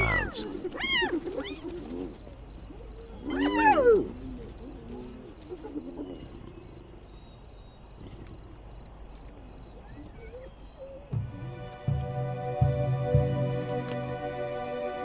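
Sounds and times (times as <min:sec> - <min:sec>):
hyena calling: 0:00.0 - 0:02.2, 0:02.8 - 0:06.9
high insect trill: 0:00.0 - 0:15.0.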